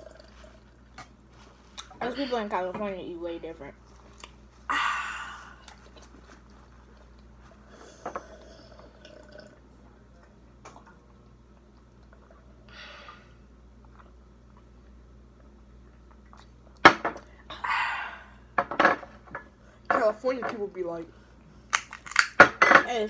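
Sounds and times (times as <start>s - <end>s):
people chewing: 0.0s - 2.1s, 3.9s - 4.7s, 5.3s - 9.5s, 21.7s - 22.4s.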